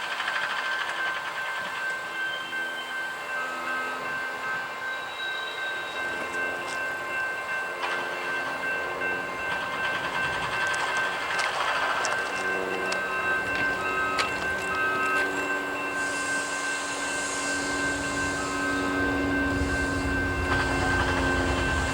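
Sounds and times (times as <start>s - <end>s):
freight train rolling past: 0.0s - 21.9s
high-pitched ringing tones: 0.6s - 21.9s.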